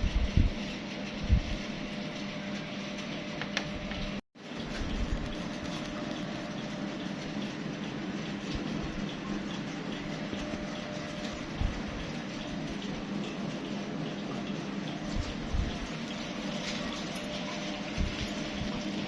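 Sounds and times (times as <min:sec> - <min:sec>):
steady rumbling: 0:03.9 - 0:19.0.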